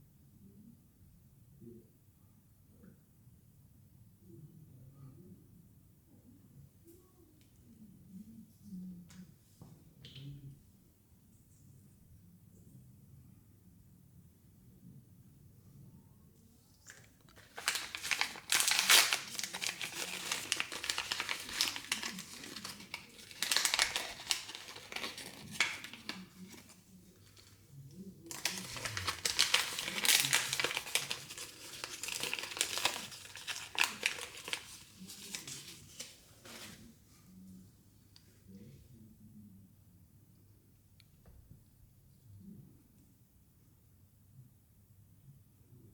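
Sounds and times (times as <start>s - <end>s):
plastic wrapping crumpled and torn: 16.9s - 36.8s.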